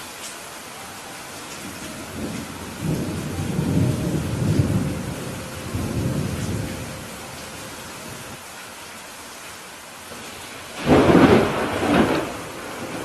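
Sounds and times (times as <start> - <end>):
steady rain: 0.0 - 13.0
rolling thunder rumble: 1.6 - 8.4, 10.2 - 13.0.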